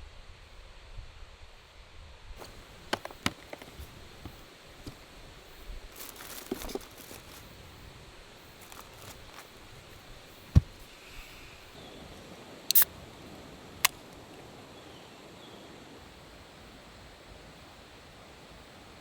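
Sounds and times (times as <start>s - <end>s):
faint outdoor background: 0.0s - 19.0s
dull thump: 10.4s - 10.9s.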